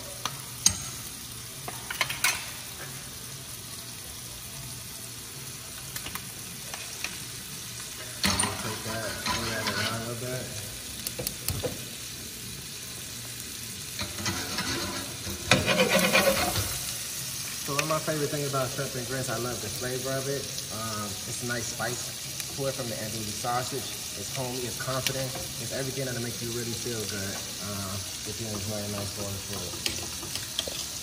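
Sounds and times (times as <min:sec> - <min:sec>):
food sizzling in pans: 0:00.0 - 0:31.0
spatula stirring and scraping: 0:08.3 - 0:10.2, 0:14.0 - 0:16.9, 0:29.5 - 0:31.0.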